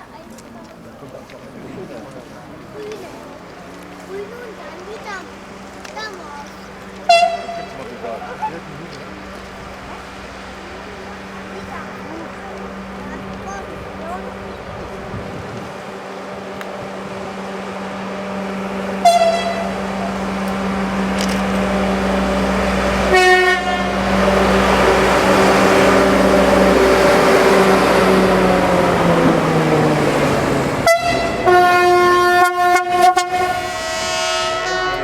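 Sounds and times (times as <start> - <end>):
locomotive passing: 0.0 - 35.0
train horn blasts: 6.9 - 8.7, 9.5 - 28.8, 30.7 - 35.0.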